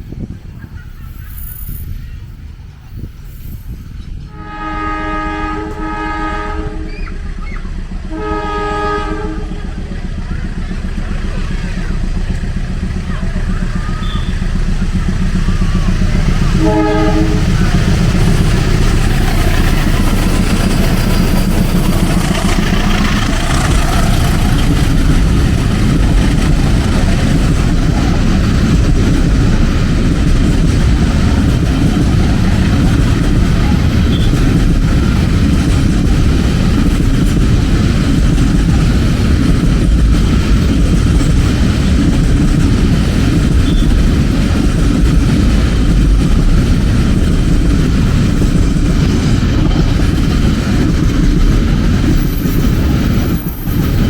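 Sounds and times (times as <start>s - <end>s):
train wheels rumbling on rails: 0.0s - 54.0s
locomotive horn blast: 4.3s - 7.3s, 8.0s - 9.7s, 16.4s - 18.1s.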